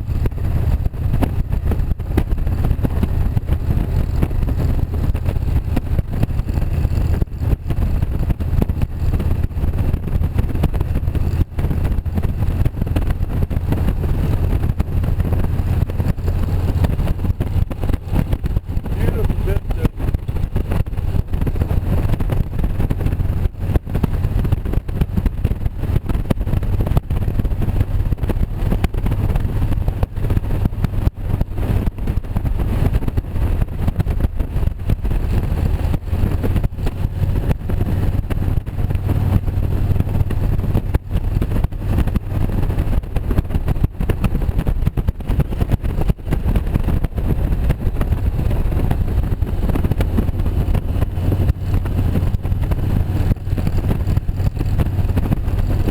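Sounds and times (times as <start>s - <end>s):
air rushing: 0.0s - 23.4s
motorcycle engine humming: 0.0s - 55.9s.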